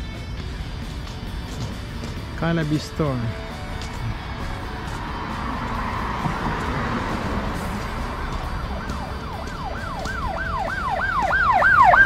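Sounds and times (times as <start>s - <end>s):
street noise: 0.0s - 12.0s
emergency vehicle siren yelping: 5.5s - 12.0s.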